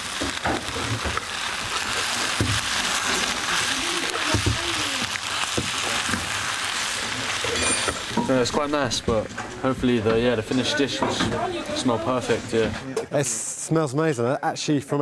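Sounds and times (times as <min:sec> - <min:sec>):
food sizzling and bubbling in pan: 0:00.0 - 0:12.9
utensil knocking pan: 0:04.2 - 0:04.8.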